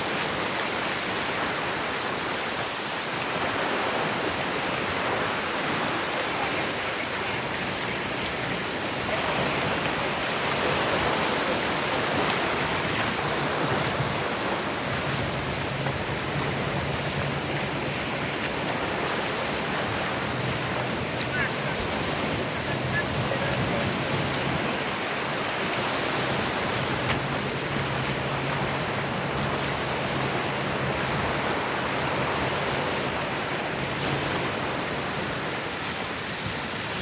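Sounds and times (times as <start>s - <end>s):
ocean surf on beach: 0.0s - 37.0s.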